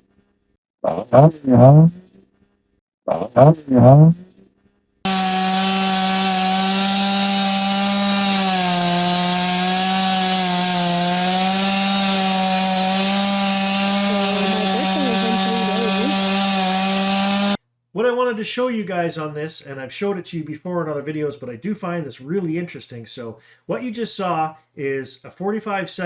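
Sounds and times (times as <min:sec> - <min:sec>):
chainsaw cutting wood: 0:05.1 - 0:17.6.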